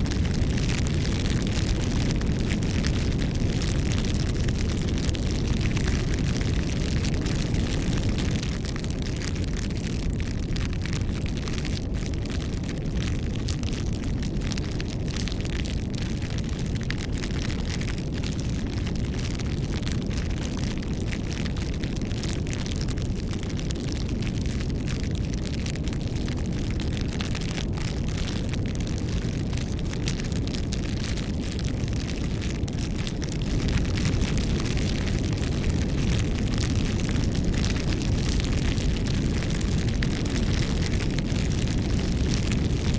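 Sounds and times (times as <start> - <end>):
burning wood crackling and popping: 0.0 - 42.9
low rush of flame: 0.0 - 42.9.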